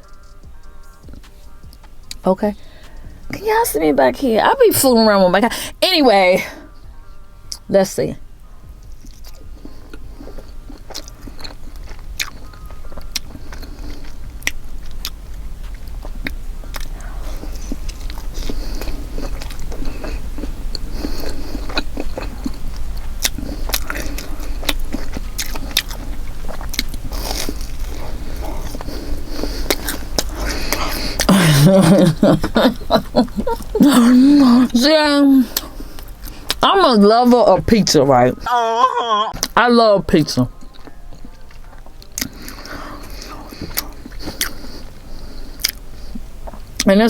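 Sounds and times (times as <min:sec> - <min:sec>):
crunchy chewing: 0:00.0 - 0:03.4, 0:08.3 - 0:36.7, 0:40.3 - 0:46.9
person speaking: 0:31.3 - 0:35.7.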